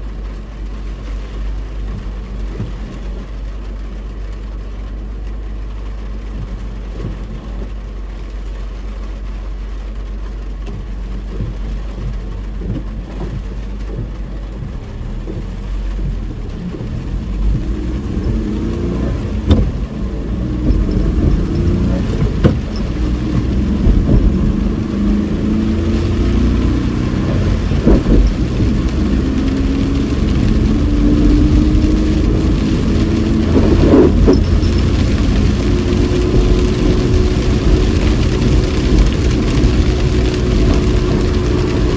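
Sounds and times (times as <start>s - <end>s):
road noise rumble: 0.0s - 41.9s
car engine revving through gears: 10.7s - 41.9s.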